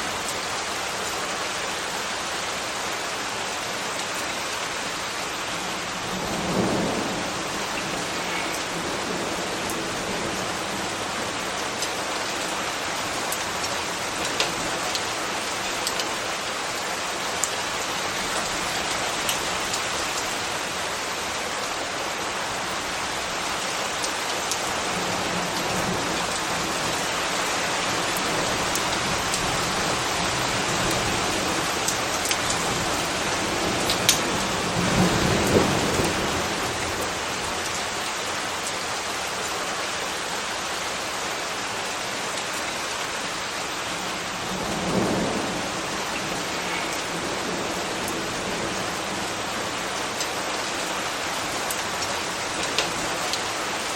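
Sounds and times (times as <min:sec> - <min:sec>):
steady rain hiss: 0:00.0 - 0:53.9
raindrop ticks: 0:13.3 - 0:15.1, 0:15.8 - 0:16.1, 0:18.3 - 0:20.4, 0:31.8 - 0:32.7, 0:33.8 - 0:34.3, 0:51.6 - 0:53.4.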